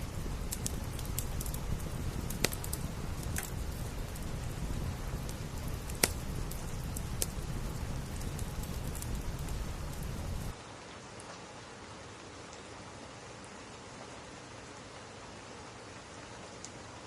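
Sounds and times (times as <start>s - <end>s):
wood fire crackling and popping: 0.0s - 10.6s
rain hiss: 0.0s - 17.0s.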